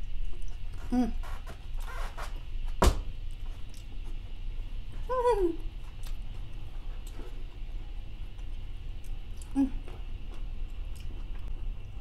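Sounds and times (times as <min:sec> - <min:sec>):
low steady hum: 0:00.0 - 0:12.0
person humming mm: 0:00.8 - 0:01.4, 0:09.4 - 0:09.9
person chewing: 0:08.2 - 0:11.6.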